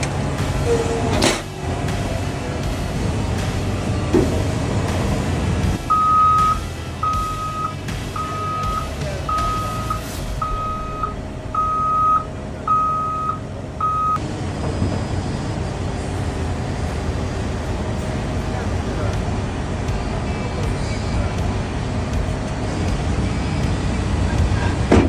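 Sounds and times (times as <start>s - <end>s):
diesel engine running: 0.0s - 25.0s
backup alarm beeping: 2.9s - 16.9s.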